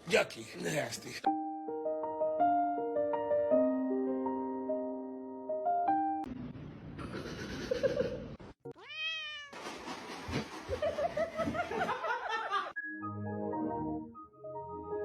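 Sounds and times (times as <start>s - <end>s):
music: 1.2s - 6.3s, 12.8s - 15.0s
cat meowing: 8.7s - 9.6s.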